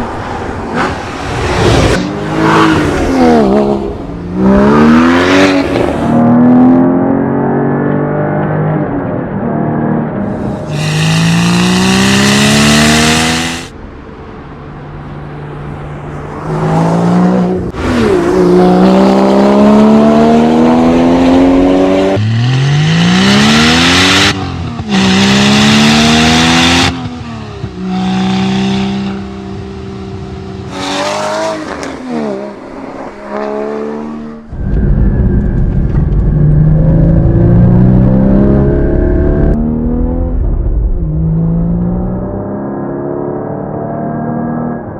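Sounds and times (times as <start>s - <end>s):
sports car engines accelerating: 2.0s - 13.7s.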